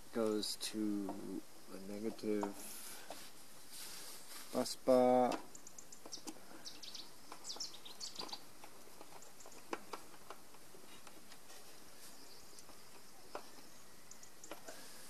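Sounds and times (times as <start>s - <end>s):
faint bird chirps: 5.4s - 8.5s, 11.6s - 15.0s.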